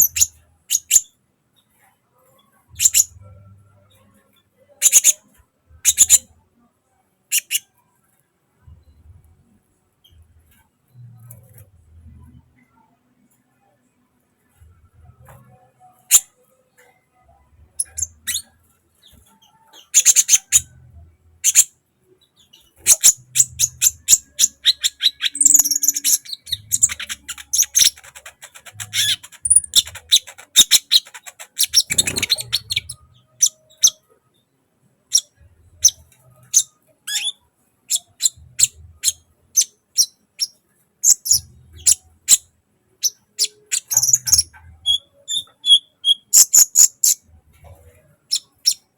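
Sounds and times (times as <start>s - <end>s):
bird chirping: 0.0s - 1.1s, 2.6s - 4.1s, 4.8s - 6.3s, 7.3s - 7.7s, 14.6s - 34.5s, 35.1s - 48.9s.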